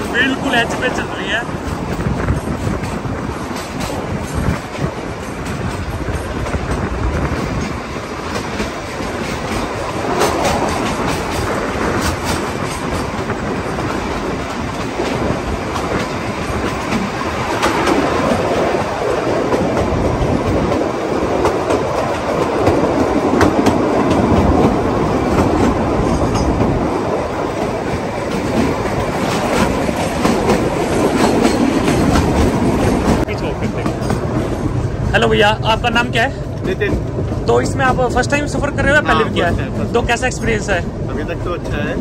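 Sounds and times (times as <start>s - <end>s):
train coach rumbling: 0.0s - 42.0s
wheels clattering over rail joints: 0.0s - 42.0s.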